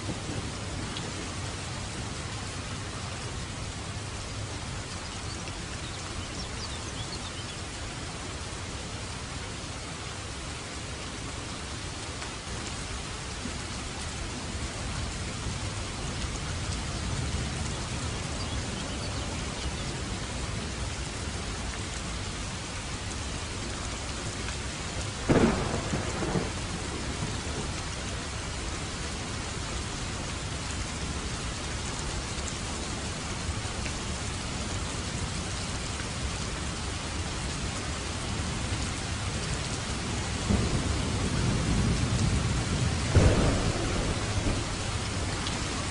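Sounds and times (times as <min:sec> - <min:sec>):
thunder crack and rumble: 0:00.0 - 0:01.2, 0:25.3 - 0:27.9, 0:40.4 - 0:45.9
steady rain: 0:00.0 - 0:45.9.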